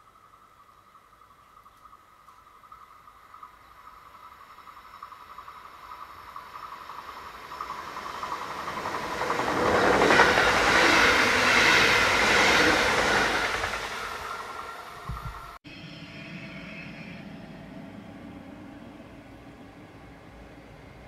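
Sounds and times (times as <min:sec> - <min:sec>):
electric train passing: 0:00.0 - 0:21.0
thin steady whine: 0:14.8 - 0:21.0.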